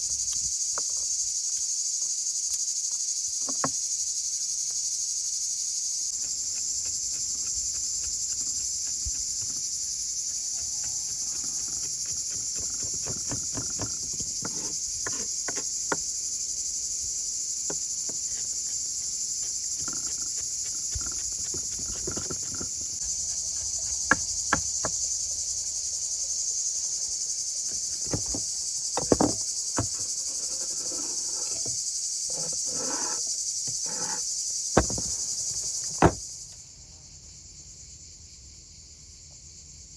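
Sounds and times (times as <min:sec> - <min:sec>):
insects droning: 0:00.0 - 0:39.9
clicks and knocks: 0:27.8 - 0:34.2, 0:34.8 - 0:36.2.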